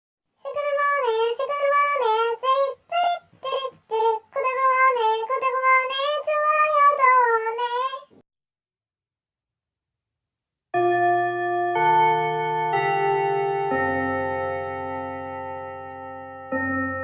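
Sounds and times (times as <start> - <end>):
high-pitched sing-song voice: 0.4 - 8.2.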